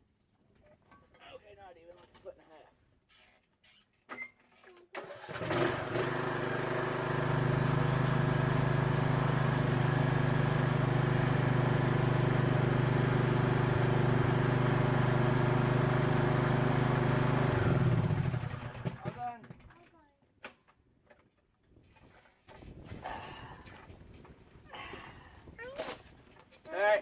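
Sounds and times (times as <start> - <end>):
riding lawn mower engine: 5.0 - 19.2.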